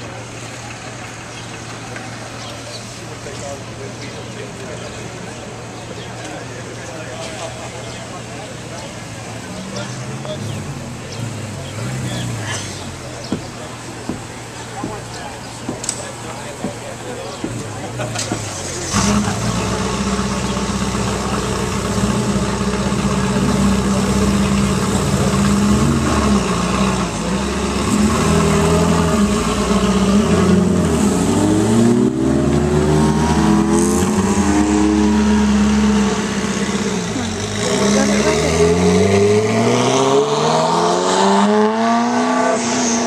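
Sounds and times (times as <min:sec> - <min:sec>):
car engine running at low revs: 0:00.0 - 0:43.0
car engine revving: 0:07.7 - 0:16.2, 0:17.5 - 0:43.0.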